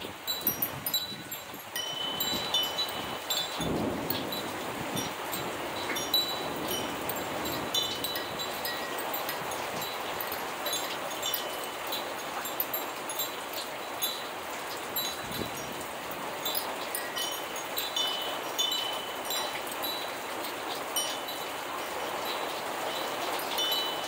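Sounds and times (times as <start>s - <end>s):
steady rain falling: 0.0s - 24.0s
wind chime ringing: 0.2s - 24.0s.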